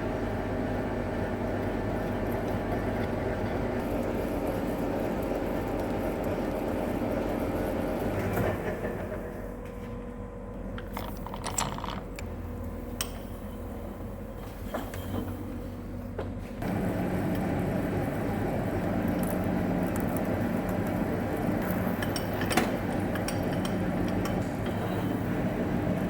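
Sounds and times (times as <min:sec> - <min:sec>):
lathe machine hum: 0:00.0 - 0:09.5, 0:16.6 - 0:26.0.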